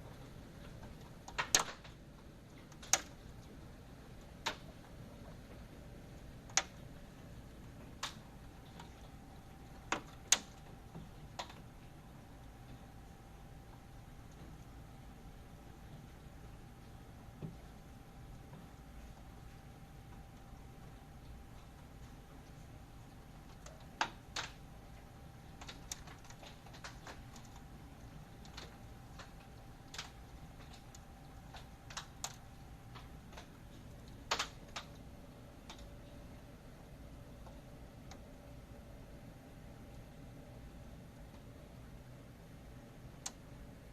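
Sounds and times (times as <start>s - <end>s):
faint steady hum: 0.0s - 43.9s
low steady rumble: 0.0s - 43.9s
light clicks and taps: 0.1s - 13.2s, 15.8s - 38.3s, 43.1s - 43.6s.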